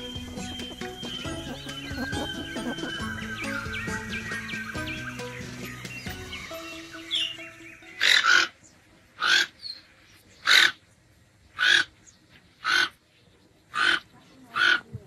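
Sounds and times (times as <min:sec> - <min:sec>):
bird hoarse calls: 0:00.0 - 0:06.5.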